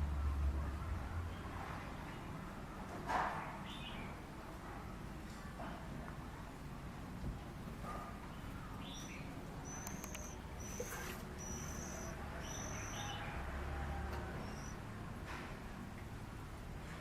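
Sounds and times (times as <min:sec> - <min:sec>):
bird lower chirps: 0:08.4 - 0:13.4, 0:14.2 - 0:14.8
bird high thin calls: 0:08.7 - 0:13.4, 0:14.2 - 0:14.8.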